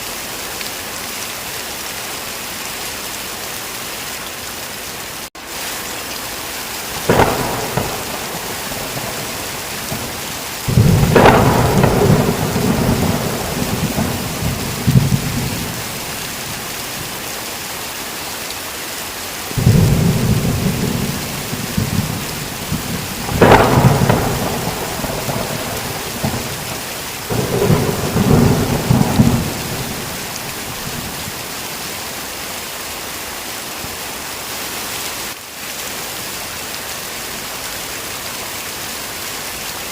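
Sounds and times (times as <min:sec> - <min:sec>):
heavy rain: 0:00.0 - 0:39.9
thunder crack: 0:07.0 - 0:17.2, 0:19.6 - 0:31.5
thunder rumbling: 0:07.0 - 0:17.2, 0:19.5 - 0:31.9.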